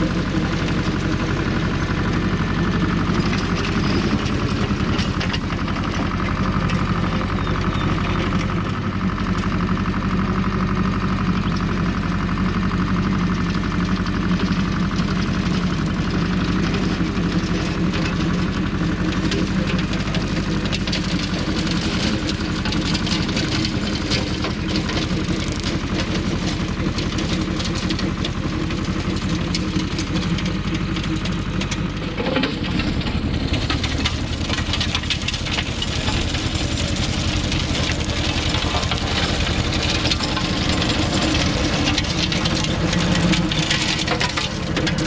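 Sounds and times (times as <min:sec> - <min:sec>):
tractor diesel engine: 0:00.0 - 0:45.0.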